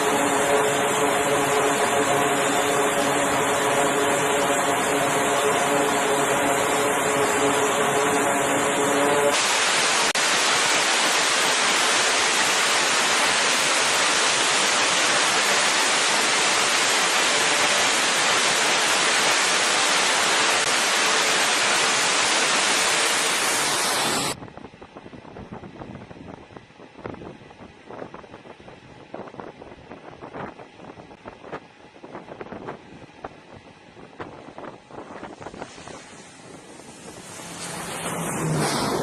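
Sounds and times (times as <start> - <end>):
jet engine rushing roar: 0.0 - 24.4, 34.9 - 39.0
jet engine whine: 0.0 - 24.4, 32.7 - 39.0.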